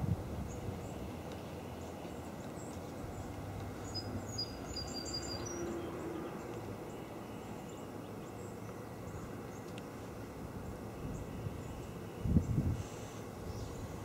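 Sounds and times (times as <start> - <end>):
wind with low rumble: 0.0 - 14.0
faint high chirps: 3.8 - 6.0.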